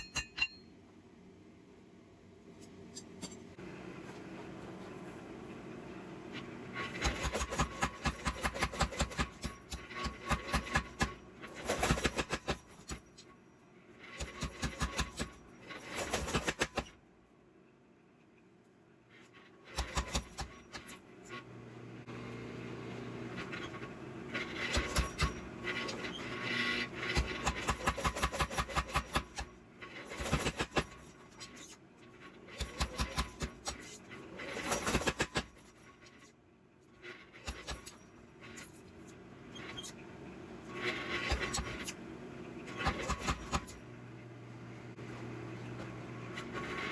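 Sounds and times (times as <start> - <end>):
hammer striking steel on anvil: 0.0 - 0.7.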